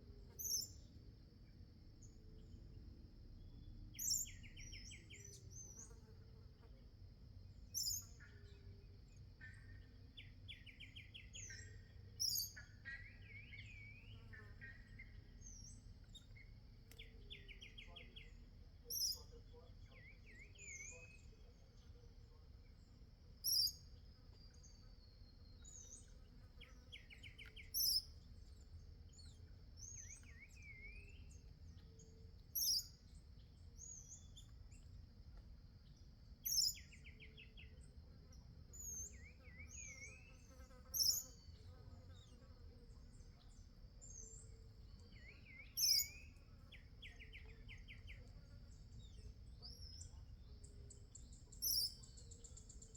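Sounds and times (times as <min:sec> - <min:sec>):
birds calling and trilling: 0:09.5 - 0:21.4, 0:23.4 - 0:28.2, 0:29.1 - 0:34.8, 0:36.4 - 0:41.6, 0:43.4 - 0:52.9.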